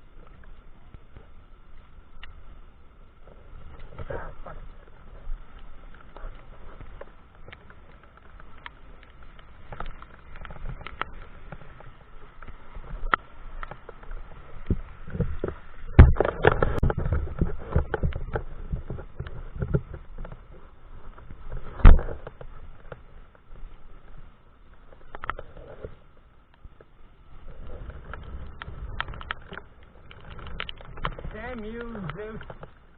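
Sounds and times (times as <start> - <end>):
bike rattling over rough ground: 0.0 - 32.9.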